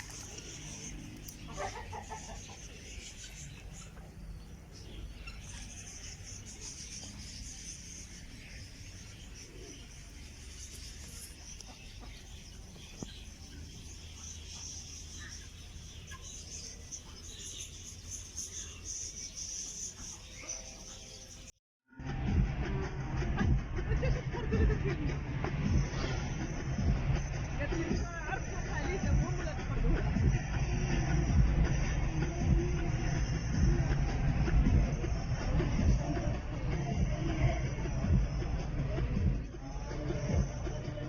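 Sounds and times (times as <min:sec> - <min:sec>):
small birds chirping: 0:00.0 - 0:21.6.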